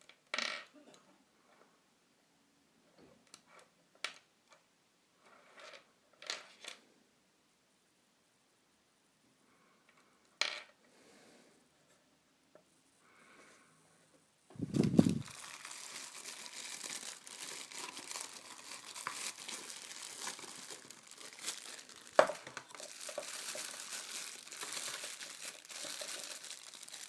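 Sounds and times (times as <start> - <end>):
plastic packaging crinkling: 14.6 - 27.0.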